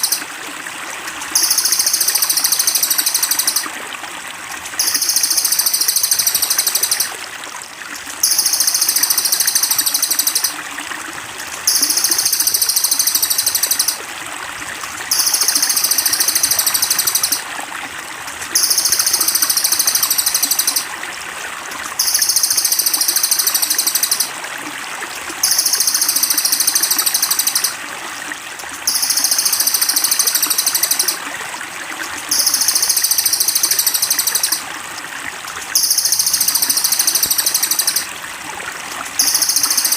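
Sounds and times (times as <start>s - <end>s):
high buzzy bird trill: 0.0s - 0.2s, 1.4s - 3.6s, 4.8s - 7.1s, 8.2s - 10.5s, 11.7s - 14.0s, 15.1s - 17.4s, 22.0s - 24.3s, 25.4s - 27.8s, 28.9s - 31.2s, 32.3s - 34.6s, 35.8s - 38.1s
water trickling: 0.0s - 39.9s.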